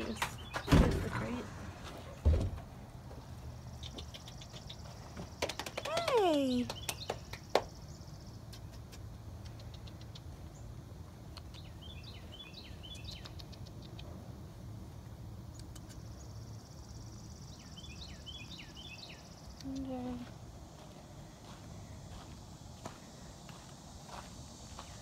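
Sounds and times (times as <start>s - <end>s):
bird chirping: 0.0s - 1.4s, 3.6s - 14.1s, 15.5s - 20.2s.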